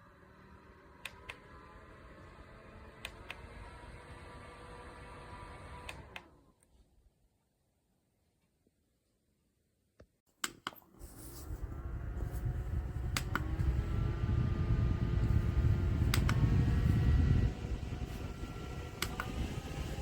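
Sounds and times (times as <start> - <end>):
desk fan whirring: 0.0 - 6.4, 11.0 - 20.0
fan button clicks: 13.0 - 13.8, 15.2 - 17.2, 19.0 - 19.6.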